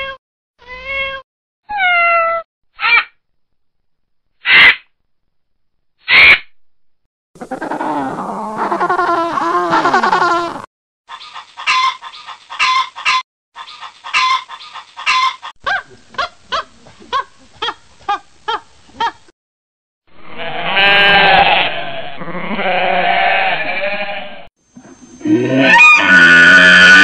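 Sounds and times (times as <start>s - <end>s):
sheep bleating: 20.2s - 24.5s.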